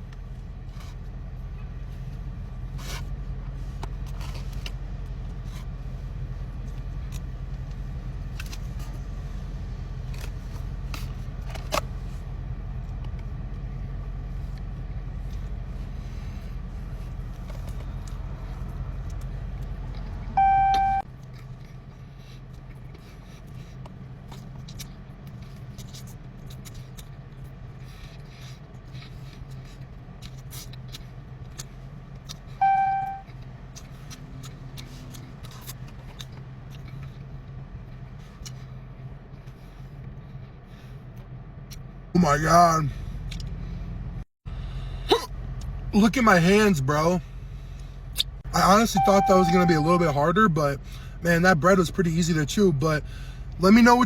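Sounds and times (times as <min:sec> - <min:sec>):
chewing and scraping: 0:00.1 - 0:09.2, 0:12.8 - 0:20.3, 0:21.1 - 0:32.6, 0:33.2 - 0:41.9
short loud beep: 0:20.4 - 0:21.0, 0:32.6 - 0:33.2, 0:48.9 - 0:50.1.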